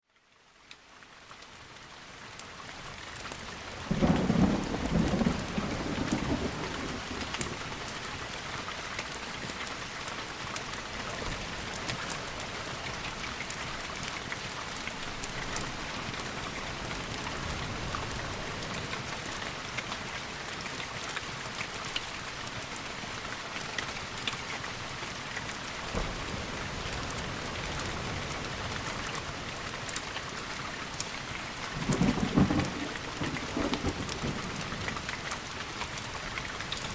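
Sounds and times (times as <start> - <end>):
heavy rain: 0.0 - 36.9
thunder rumbling: 3.9 - 7.6, 31.8 - 34.9.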